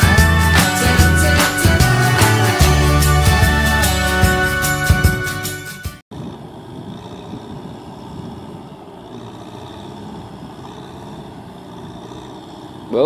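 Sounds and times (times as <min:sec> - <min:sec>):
tractor diesel engine running: 0:00.0 - 0:05.0, 0:06.1 - 0:13.0
intro music: 0:00.0 - 0:06.0.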